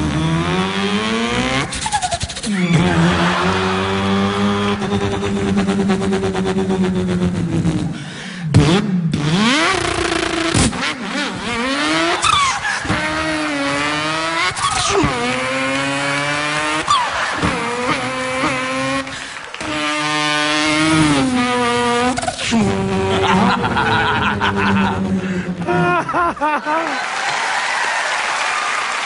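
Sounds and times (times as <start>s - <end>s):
man imitating car engine: 0.0s - 26.9s.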